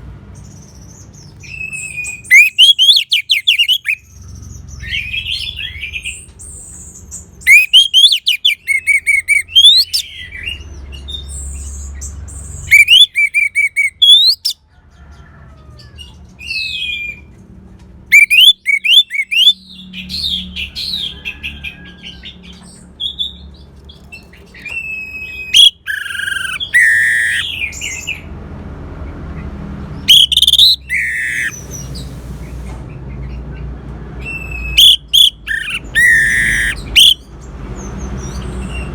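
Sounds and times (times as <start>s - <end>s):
bird singing whistled phrases: 1.4s - 4.0s, 7.4s - 10.2s, 12.7s - 14.6s, 18.1s - 19.7s, 24.7s - 28.1s, 30.1s - 31.6s, 34.2s - 37.2s.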